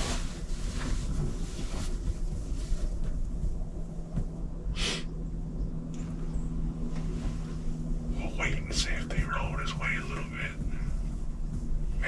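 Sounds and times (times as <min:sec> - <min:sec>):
steady low hum: 0:00.0 - 0:12.0
person sniffing: 0:04.8 - 0:05.1.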